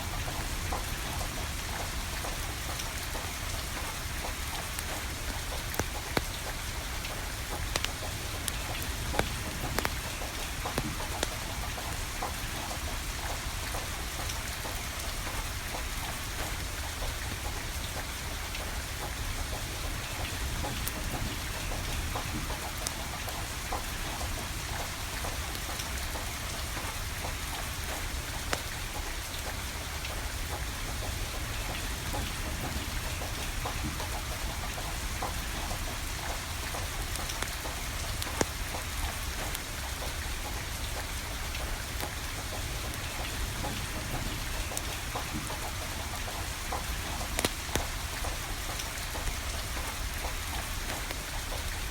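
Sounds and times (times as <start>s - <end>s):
rain falling: 0.0s - 51.9s
firewood crackling and popping: 2.3s - 15.3s, 22.2s - 40.1s, 41.6s - 51.9s.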